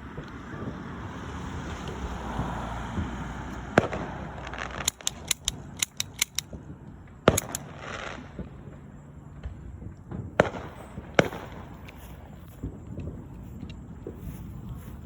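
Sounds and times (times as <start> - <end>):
fireworks banging and crackling: 0.0 - 15.0.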